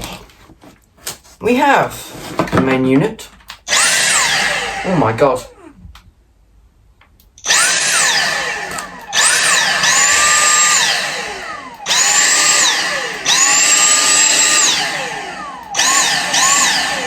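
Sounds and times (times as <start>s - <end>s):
vacuum motor whining: 3.7s - 5.8s, 7.4s - 17.0s.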